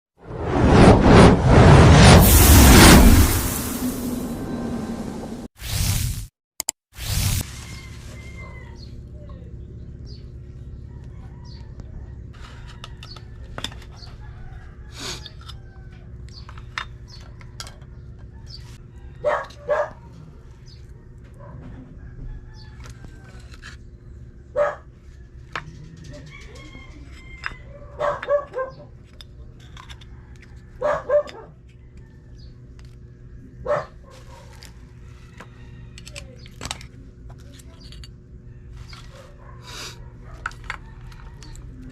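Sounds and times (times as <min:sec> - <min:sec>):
rooster crowing: 0:07.5 - 0:09.0, 0:10.9 - 0:16.1, 0:18.8 - 0:20.2, 0:21.7 - 0:23.5, 0:26.0 - 0:28.2, 0:35.0 - 0:36.4, 0:39.8 - 0:41.9.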